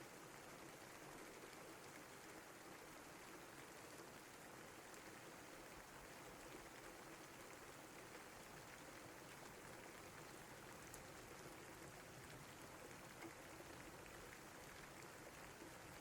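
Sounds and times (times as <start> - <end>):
rain falling: 4.7 - 15.1.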